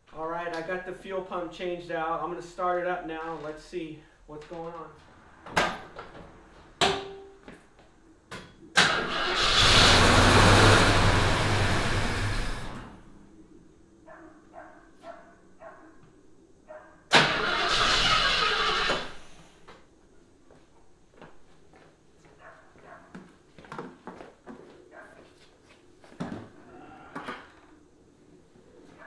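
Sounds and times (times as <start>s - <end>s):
car engine cranking: 8.8s - 13.0s, 17.1s - 19.2s.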